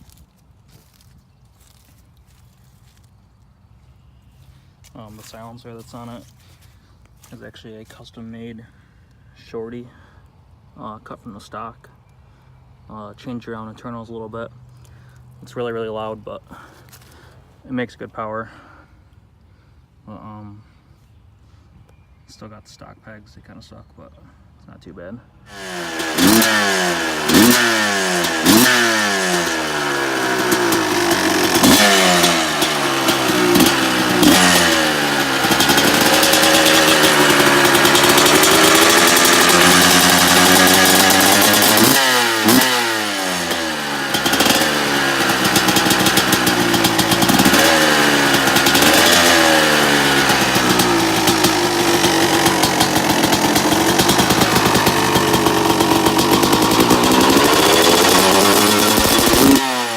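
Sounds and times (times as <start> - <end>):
motorcycle engine revving: 25.5 - 59.9.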